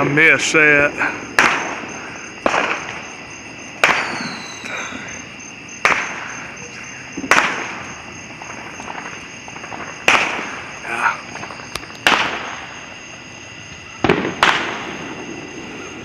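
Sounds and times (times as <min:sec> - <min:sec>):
fireworks bangs with echo: 0:00.0 - 0:16.0
faint falling whistle: 0:03.9 - 0:05.1.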